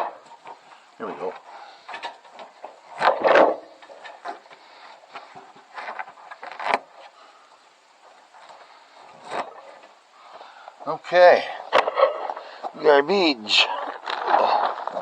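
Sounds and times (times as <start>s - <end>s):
seed bags rustling and knocking: 8.0s - 15.0s.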